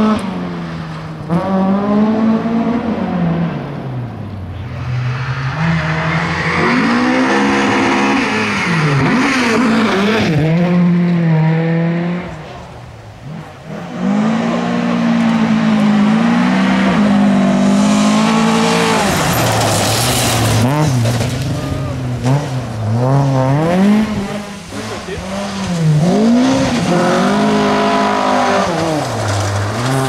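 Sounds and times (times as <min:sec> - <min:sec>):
car engine revving hard: 0:05.3 - 0:12.4, 0:13.2 - 0:30.0.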